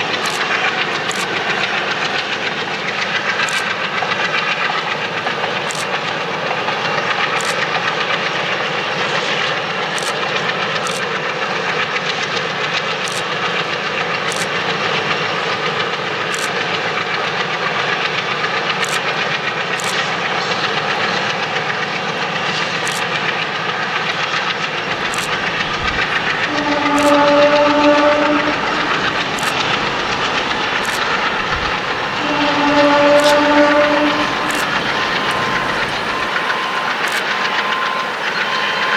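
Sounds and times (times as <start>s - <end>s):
freight train rolling past: 0.0s - 38.9s
wheels clicking over rail joints: 0.0s - 38.9s
locomotive multi-tone horn: 24.8s - 38.9s.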